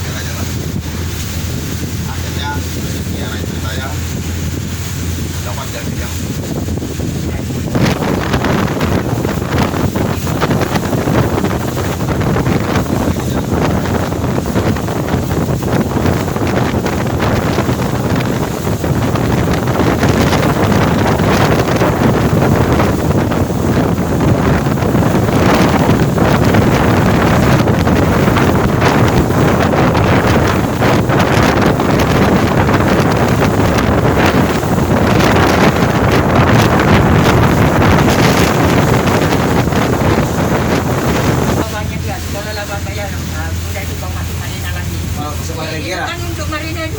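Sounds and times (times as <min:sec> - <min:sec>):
boat engine noise: 0:00.0 - 0:46.9
wind buffeting microphone: 0:00.0 - 0:46.9.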